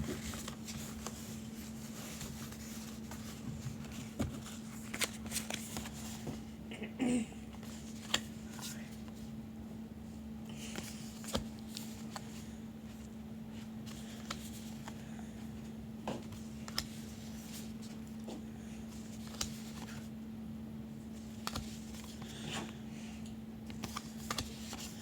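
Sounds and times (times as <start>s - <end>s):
steady low hum: 0.0s - 25.0s
cards clicking and tapping: 16.0s - 18.4s, 19.2s - 20.0s, 21.3s - 22.3s, 23.7s - 25.0s.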